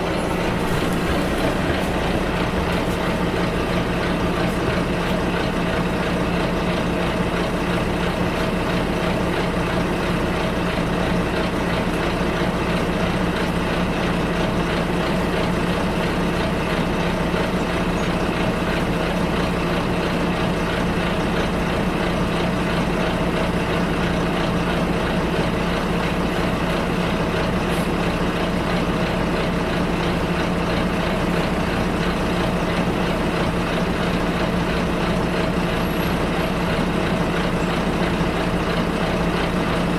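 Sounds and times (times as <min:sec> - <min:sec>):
bus engine droning: 0:00.0 - 0:39.9
cabin and road noise: 0:00.0 - 0:39.9.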